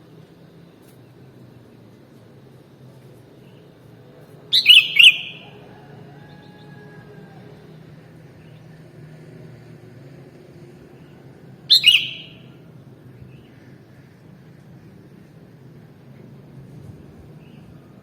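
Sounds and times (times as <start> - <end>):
low background hum: 0.0 - 18.0
bird call: 4.5 - 7.4, 11.7 - 12.6.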